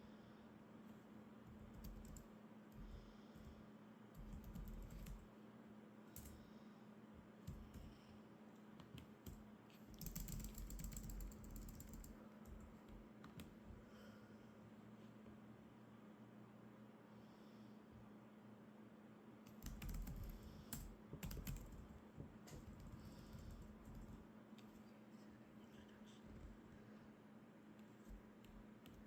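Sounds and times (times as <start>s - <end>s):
keyboard typing: 1.5s - 3.5s, 4.1s - 5.2s, 6.1s - 6.4s, 8.8s - 13.5s, 19.5s - 24.2s.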